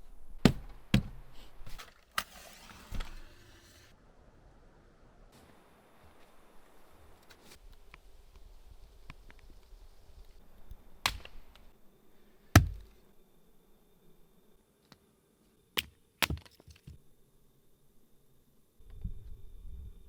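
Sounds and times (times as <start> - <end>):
axe chopping wood: 0.4 - 1.2, 11.0 - 11.4, 12.6 - 13.0, 15.8 - 17.0.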